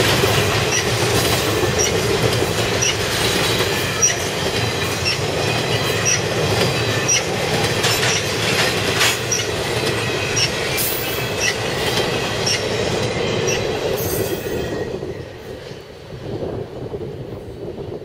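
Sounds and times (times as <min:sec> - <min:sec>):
rumble of wheels on rail: 0:00.0 - 0:18.0
high wheel squeaks: 0:05.0 - 0:15.3.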